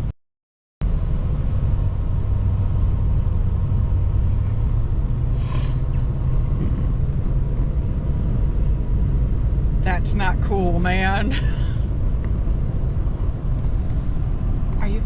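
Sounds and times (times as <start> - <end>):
road and engine rumble in truck cab: 0.8 - 15.0.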